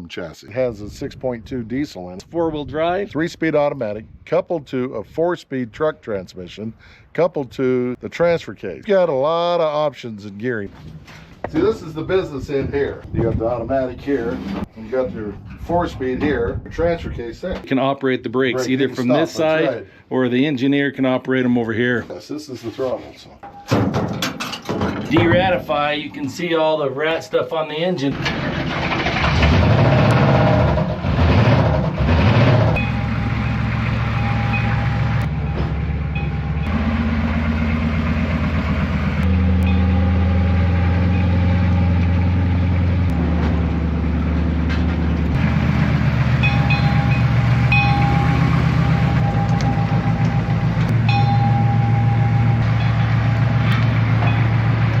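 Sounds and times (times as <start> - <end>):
diesel engine running: 25.2 - 26.8, 28.1 - 55.0.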